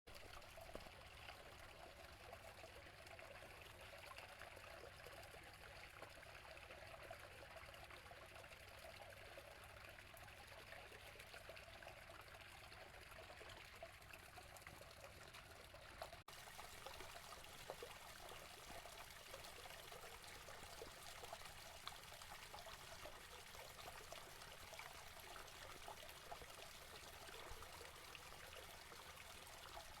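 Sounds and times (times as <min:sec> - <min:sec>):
spring water trickling: 0:12.3 - 0:30.0.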